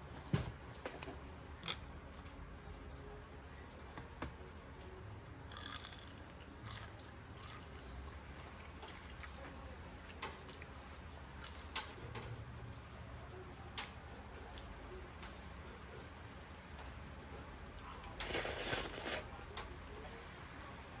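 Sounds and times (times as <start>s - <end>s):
wet eating sounds: 0.8s - 2.3s, 5.4s - 12.2s, 18.0s - 19.8s.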